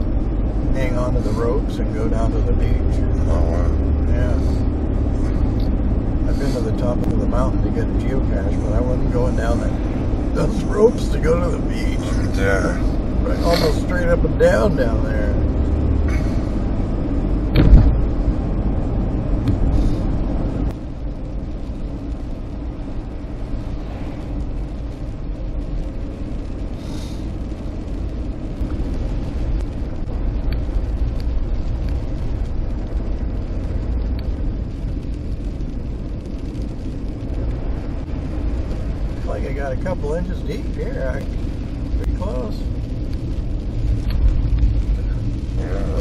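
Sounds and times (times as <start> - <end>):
car engine and road rumble: 0.0 - 46.0
sharp knock: 17.5 - 18.0.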